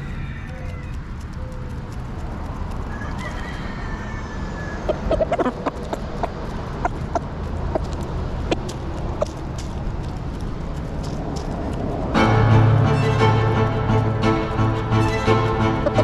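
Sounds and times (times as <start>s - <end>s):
chickens clucking: 0.0s - 11.6s, 14.6s - 16.0s
steady low rumble: 4.8s - 16.0s.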